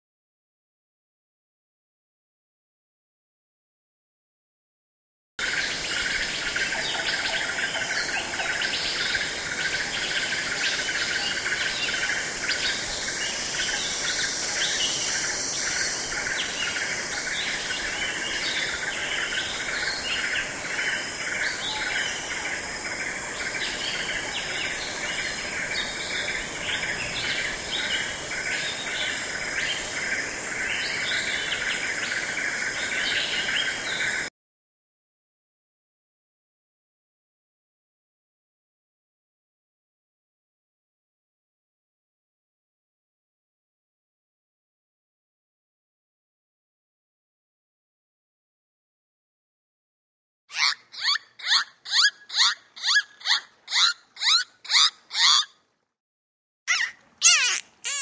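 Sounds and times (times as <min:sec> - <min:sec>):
insect hiss: 0:05.4 - 0:34.3
small birds chirping: 0:50.5 - 0:55.6, 0:56.7 - 0:58.0.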